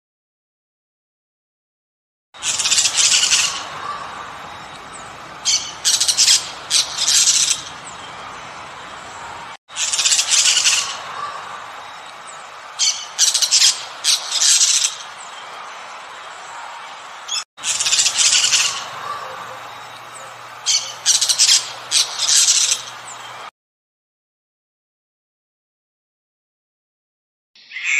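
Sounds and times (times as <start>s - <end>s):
toucans calling harshly: 2.4s - 12.0s, 12.8s - 15.1s, 17.3s - 23.5s
steady background hiss: 2.4s - 23.5s.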